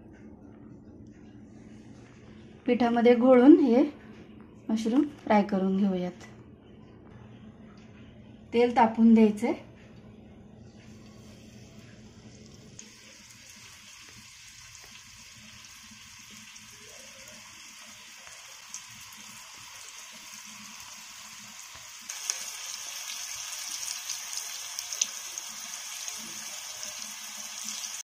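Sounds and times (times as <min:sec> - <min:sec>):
mushrooms sizzling in oil: 0:12.8 - 0:28.0.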